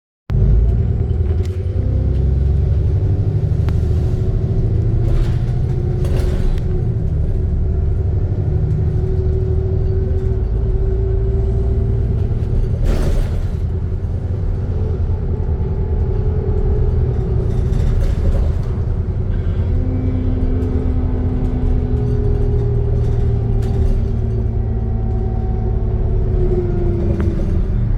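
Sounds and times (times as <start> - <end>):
bus engine rumbling: 0.3 - 27.9.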